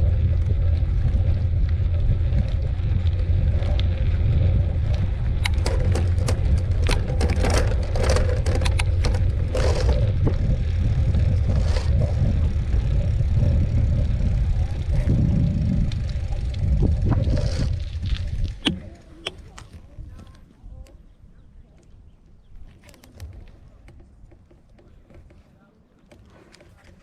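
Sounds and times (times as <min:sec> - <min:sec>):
mountain bike rattling over dirt: 0:00.0 - 0:20.4.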